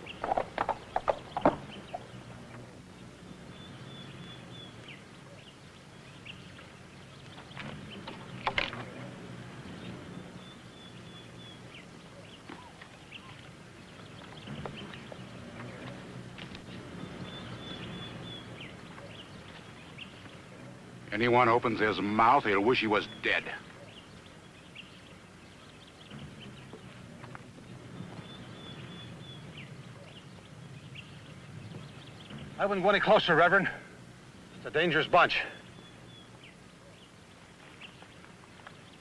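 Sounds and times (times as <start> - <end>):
bird trilling: 0.0 - 33.5
faint low hum: 0.0 - 39.0.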